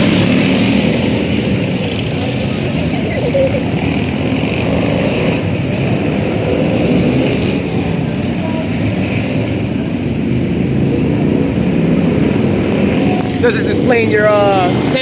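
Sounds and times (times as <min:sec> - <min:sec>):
motorcycle engines rumbling: 0:00.0 - 0:15.0.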